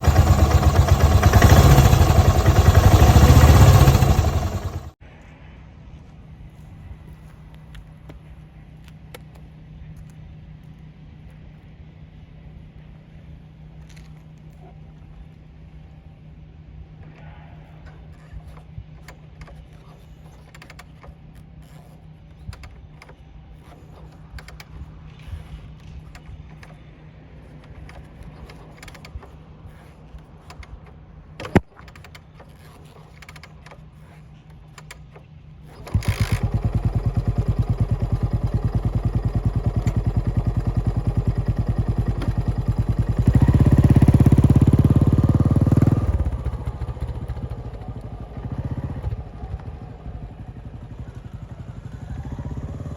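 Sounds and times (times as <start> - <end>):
motorcycle engine thumping idle: 0.0 - 5.0, 35.8 - 52.9.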